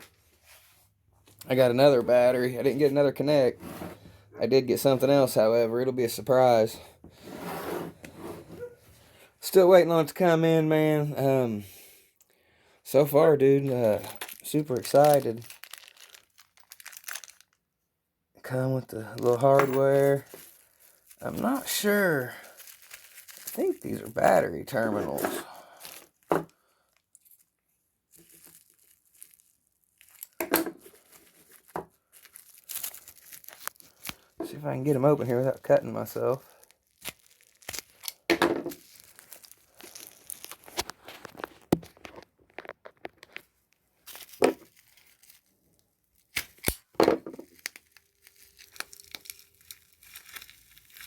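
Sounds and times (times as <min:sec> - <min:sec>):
plastic packaging crinkling: 0:13.7 - 0:17.7, 0:19.2 - 0:51.0
plastic crackle: 0:13.8 - 0:17.6, 0:19.2 - 0:51.0
sharp plastic crack: 0:46.3 - 0:47.9.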